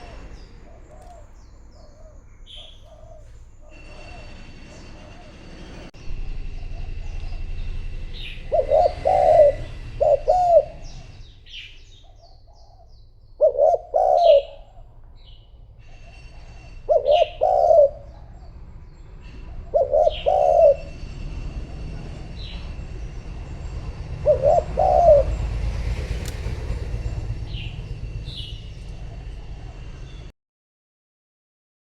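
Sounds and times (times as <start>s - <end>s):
dove cooing: 0.0s - 5.5s, 8.2s - 11.3s, 12.0s - 15.0s, 15.8s - 18.5s, 19.4s - 21.1s, 23.3s - 30.2s
small birds chirping: 0.0s - 5.8s, 6.4s - 30.3s.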